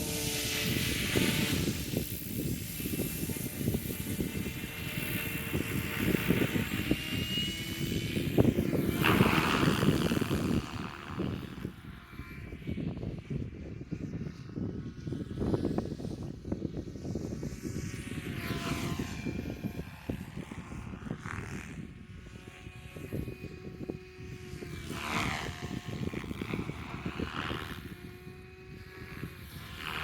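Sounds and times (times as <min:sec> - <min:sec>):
helicopter engine and rotor: 0:00.0 - 0:12.1
wind rumble on microphone: 0:00.0 - 0:30.0.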